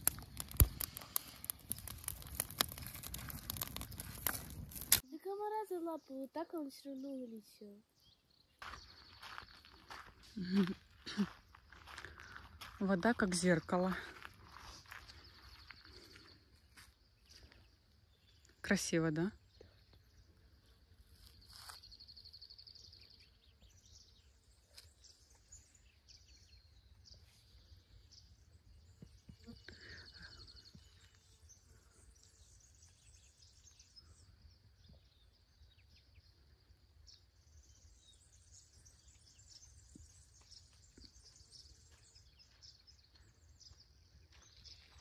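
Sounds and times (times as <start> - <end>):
faint bird chirps: 13.4 - 45.0.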